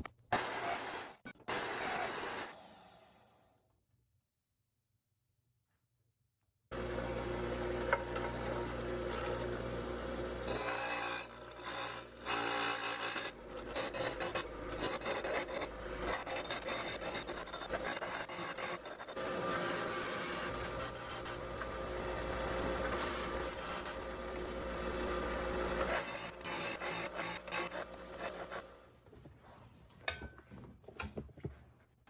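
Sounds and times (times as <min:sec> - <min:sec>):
metal cutting and welding noise: 0:06.8 - 0:28.8.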